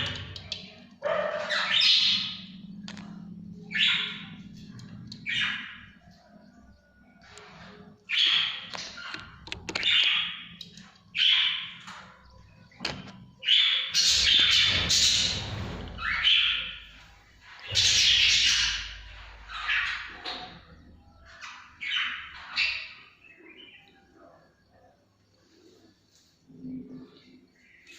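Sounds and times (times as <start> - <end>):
bird chicks squawking: 0.0 - 6.2, 13.4 - 23.2.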